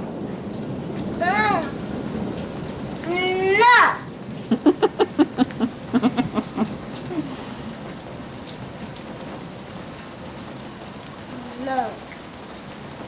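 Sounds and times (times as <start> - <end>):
steady rain splashing: 0.0 - 13.0
toddler babbling syllables: 1.2 - 1.8, 3.1 - 4.1, 11.4 - 12.1.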